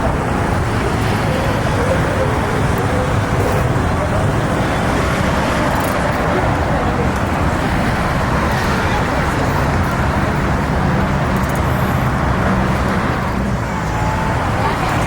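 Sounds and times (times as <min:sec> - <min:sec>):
indistinct voices: 0:00.0 - 0:15.0
vehicle engines running: 0:00.0 - 0:15.0.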